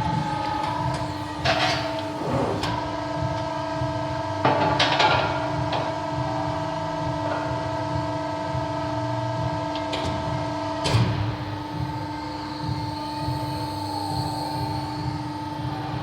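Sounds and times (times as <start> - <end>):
hydraulic press humming: 0.0 - 5.9, 9.8 - 16.0.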